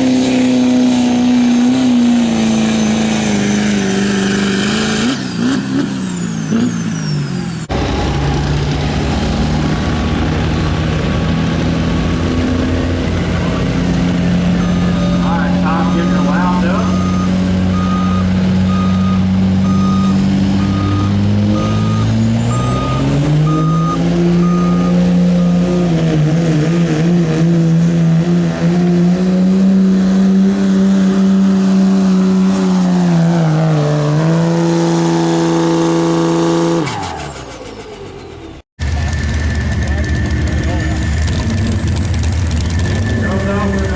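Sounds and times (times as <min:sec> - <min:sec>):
diesel engine under load: 0:00.0 - 0:43.9
electronic beeps: 0:14.5 - 0:25.6, 0:42.7 - 0:43.9.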